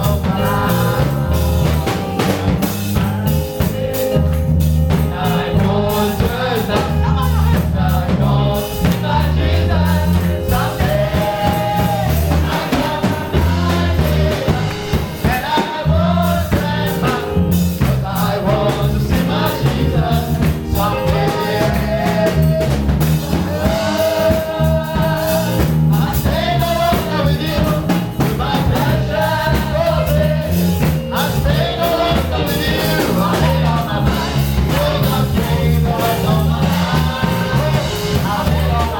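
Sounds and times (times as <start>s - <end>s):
drum kit beat: 0.0s - 38.9s
gospel singing over a band: 0.0s - 38.9s.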